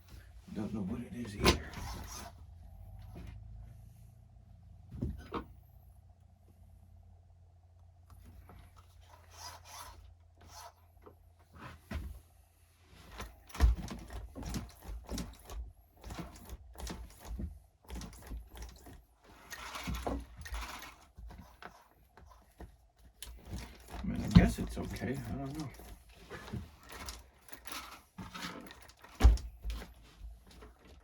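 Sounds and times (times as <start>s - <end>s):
toy truck handled by hand: 8.1s - 12.0s, 13.0s - 31.0s.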